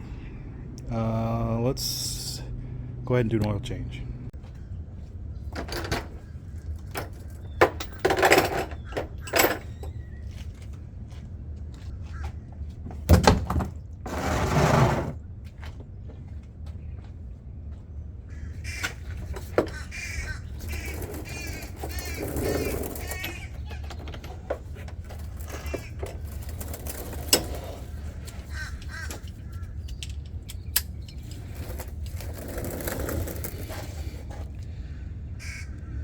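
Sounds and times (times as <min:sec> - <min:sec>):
steady low hum: 0:00.0 - 0:07.5, 0:14.9 - 0:36.0
rushing scrape: 0:14.1 - 0:15.2, 0:20.1 - 0:23.6, 0:31.2 - 0:34.6.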